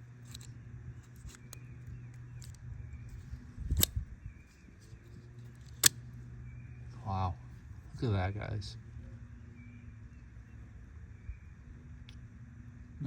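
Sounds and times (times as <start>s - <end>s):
knife slider clicks: 0.2s - 1.7s.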